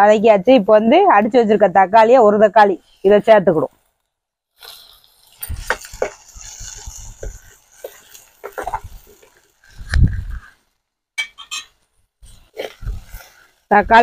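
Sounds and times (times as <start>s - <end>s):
tomato sizzling in hot oil: 4.5s - 10.8s, 11.4s - 14.0s.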